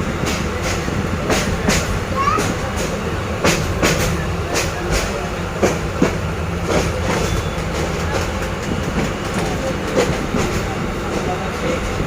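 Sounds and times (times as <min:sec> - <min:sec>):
train carriage rumble: 0:00.0 - 0:12.0.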